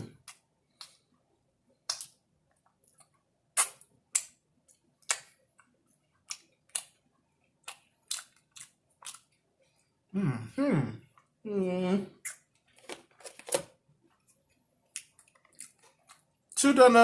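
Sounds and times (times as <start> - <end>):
chewing crispy food: 1.8 - 9.8, 14.3 - 16.6.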